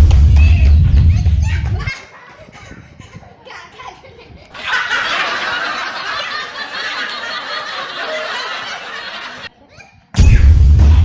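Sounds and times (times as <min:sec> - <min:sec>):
group laughing: 0:01.6 - 0:10.0.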